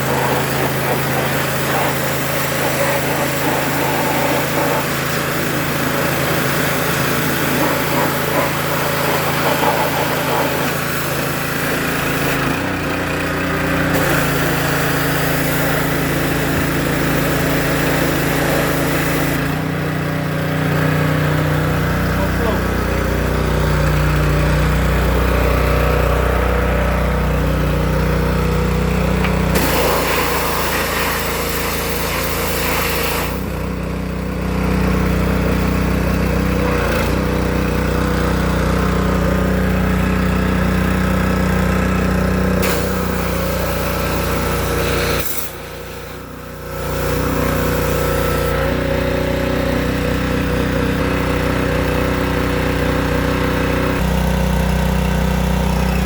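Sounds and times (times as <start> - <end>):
high-pressure water spray hiss: 0.0 - 12.5, 29.5 - 33.4, 42.6 - 48.6
small engine running: 0.0 - 56.0.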